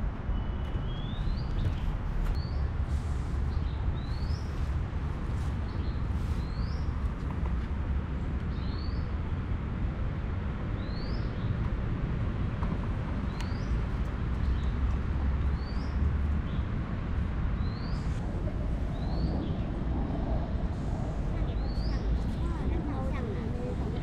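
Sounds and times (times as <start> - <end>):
steady low rumble: 11.5 - 24.0.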